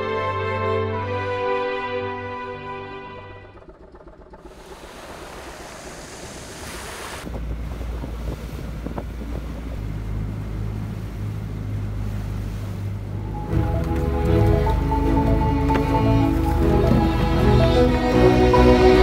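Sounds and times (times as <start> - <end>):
heavy low rumble of boat: 0.0 - 19.0
low engine drone: 0.0 - 19.0
sea water: 0.0 - 19.0
wind buffeting microphone: 3.2 - 13.6.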